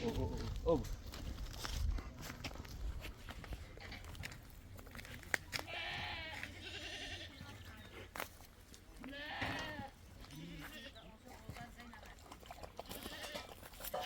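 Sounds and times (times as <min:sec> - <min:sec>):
goats bleating: 0:05.7 - 0:07.5, 0:09.0 - 0:11.1, 0:12.8 - 0:14.0.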